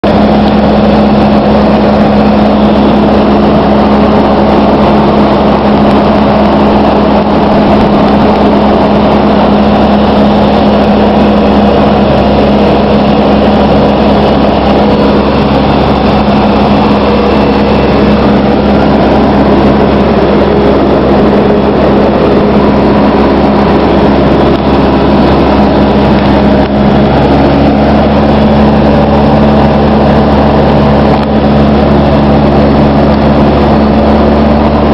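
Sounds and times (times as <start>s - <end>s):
propeller plane engine drone: 0.0s - 34.9s.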